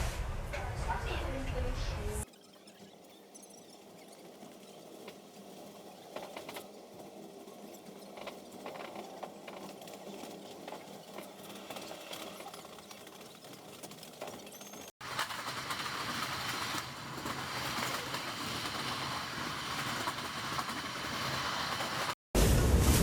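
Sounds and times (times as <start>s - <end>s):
clicks and rattles: 4.4s - 22.2s
train rumble: 4.8s - 23.0s.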